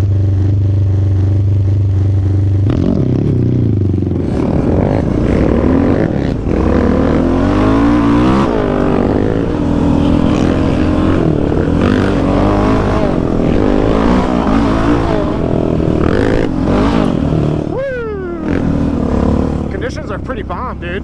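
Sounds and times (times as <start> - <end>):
atv engine revving: 0.0 - 21.0.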